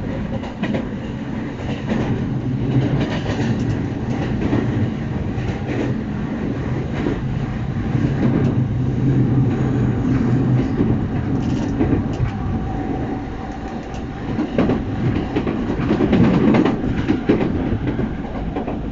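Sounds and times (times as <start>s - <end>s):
train rumble: 0.0s - 18.9s
train wheels clacking over rail joints: 10.4s - 12.4s.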